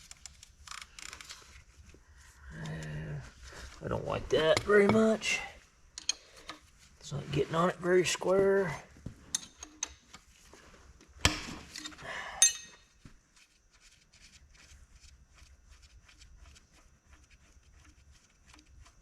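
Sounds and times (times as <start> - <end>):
metal tool clank: 11.3 - 12.9
ringing metal clink: 12.4 - 12.9.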